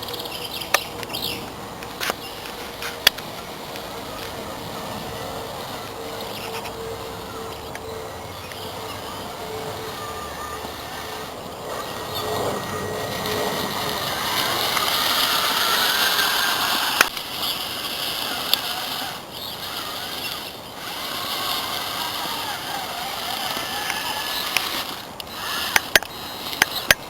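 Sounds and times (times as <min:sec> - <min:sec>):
sharp clicks: 0:00.0 - 0:04.3, 0:13.2 - 0:17.3, 0:18.2 - 0:27.0
toy truck motor whining: 0:00.0 - 0:27.0.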